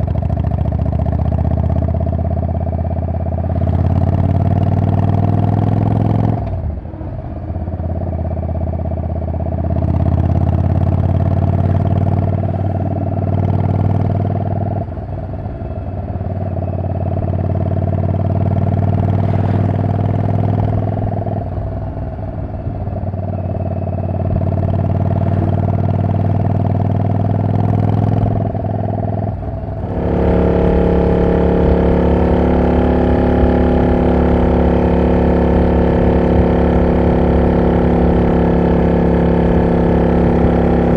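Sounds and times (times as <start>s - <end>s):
loud motorcycle engine: 0.0s - 40.9s.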